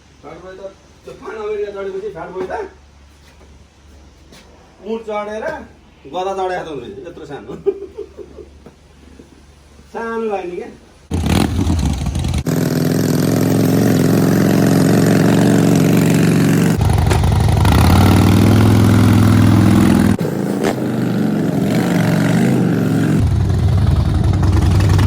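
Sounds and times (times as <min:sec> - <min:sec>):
motorcycle engine idling and revving: 0:11.1 - 0:25.0.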